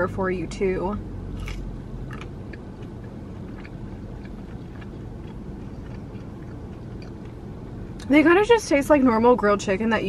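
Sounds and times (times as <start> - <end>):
low car cabin rumble: 0.0 - 10.0
quiet chewing: 1.4 - 7.4.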